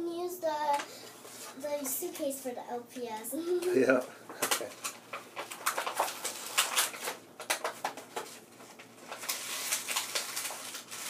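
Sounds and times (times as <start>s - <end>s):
plastic packaging crackling: 3.6s - 11.0s.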